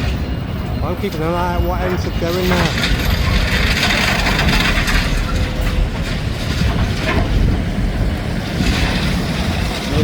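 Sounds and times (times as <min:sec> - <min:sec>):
demolition machine engines rumbling: 0:00.0 - 0:10.0.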